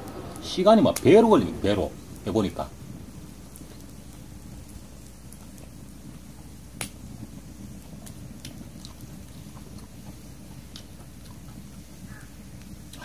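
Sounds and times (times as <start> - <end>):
low steady rumble: 0.0 - 13.0
wood fire crackling: 0.0 - 13.0.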